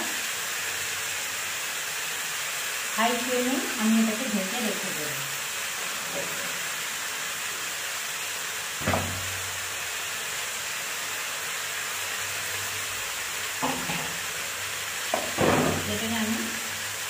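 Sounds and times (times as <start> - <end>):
chicken and onions sizzling: 0.0 - 17.0
short knock: 8.8 - 9.4.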